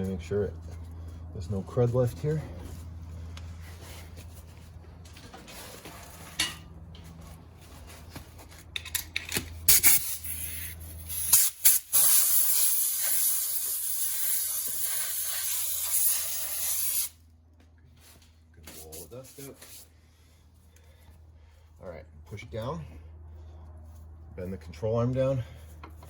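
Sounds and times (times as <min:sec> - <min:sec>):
aerosol spray hissing: 0:09.9 - 0:17.1.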